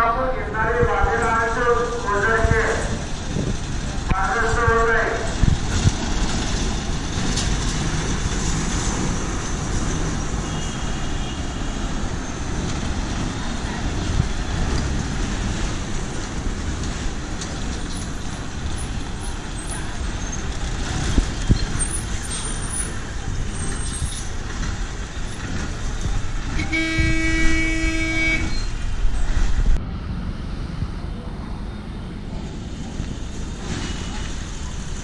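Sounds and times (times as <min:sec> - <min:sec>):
voices: 0:00.0 - 0:05.5
traffic noise: 0:00.0 - 0:35.0
vehicle horn blast: 0:10.4 - 0:11.4, 0:26.6 - 0:28.7.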